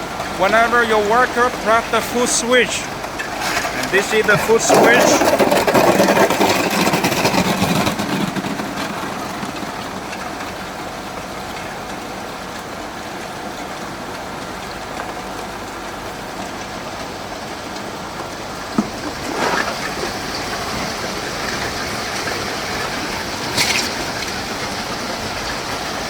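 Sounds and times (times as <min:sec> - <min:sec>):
ice plant machinery running: 0:00.0 - 0:26.0.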